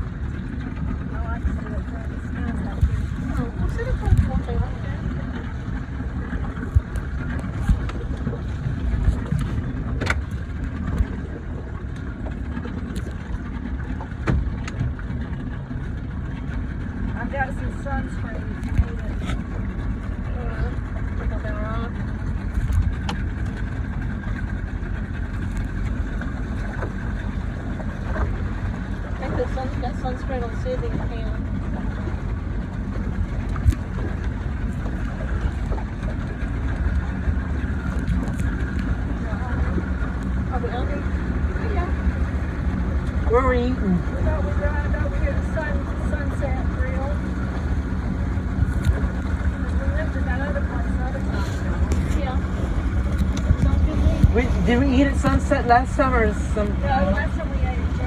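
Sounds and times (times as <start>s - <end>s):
motorboat rumble: 0.0s - 58.0s
water: 0.0s - 58.0s
wind: 0.0s - 58.0s.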